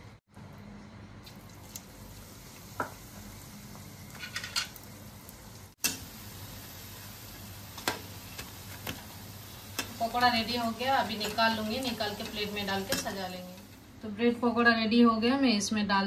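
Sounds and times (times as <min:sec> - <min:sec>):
food sizzling in hot oil: 0:01.4 - 0:13.9.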